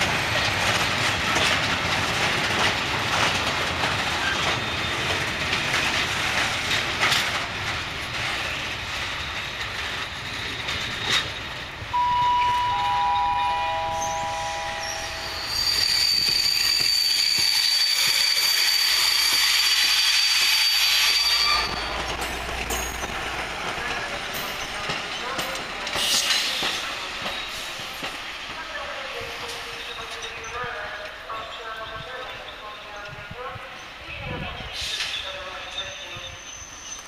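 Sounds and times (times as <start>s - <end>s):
wheel-on-rail rolling noise: 0.0s - 11.6s
clicking over rail joints: 0.1s - 11.6s
wheel squeal: 14.0s - 22.0s.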